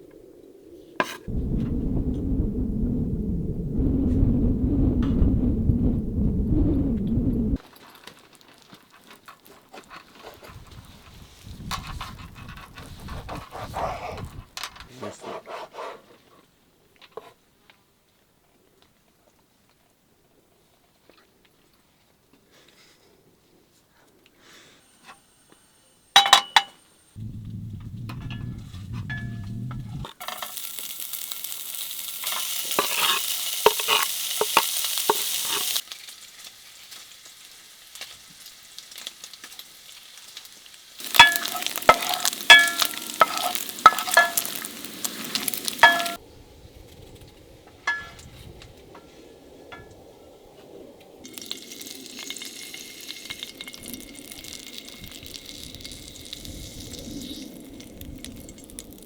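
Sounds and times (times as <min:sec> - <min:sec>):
metal utensil clinking on pan: 0:26.2 - 0:26.8, 0:41.1 - 0:44.7, 0:45.8 - 0:46.2, 0:47.9 - 0:48.2
food sizzling in a frying pan: 0:28.1 - 0:46.2, 0:51.2 - 0:59.0.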